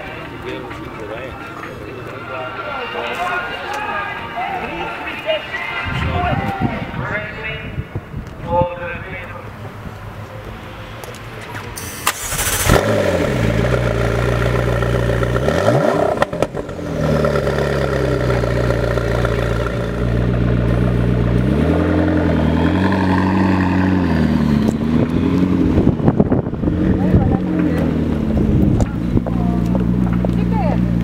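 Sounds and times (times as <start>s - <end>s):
car engine starting and idling: 11.7s - 31.0s
engine revving: 11.9s - 31.0s.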